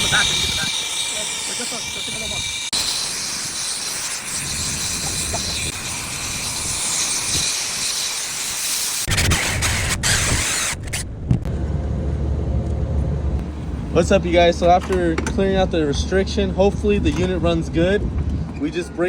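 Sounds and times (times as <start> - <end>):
pressurised gas hissing loudly: 0.0 - 11.0
low rumble: 10.7 - 18.6.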